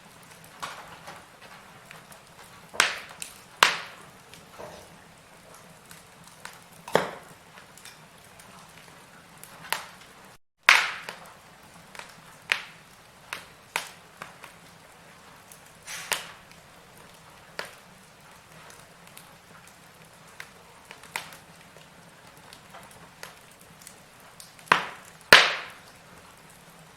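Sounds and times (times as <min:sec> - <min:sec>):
firewood crackling and popping: 0:00.0 - 0:26.9
faint hiss: 0:13.3 - 0:16.5.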